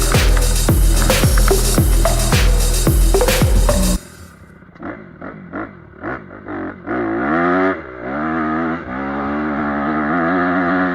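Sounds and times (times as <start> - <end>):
background music: 0.0 - 4.3
motocross bike engine revving: 0.0 - 10.9.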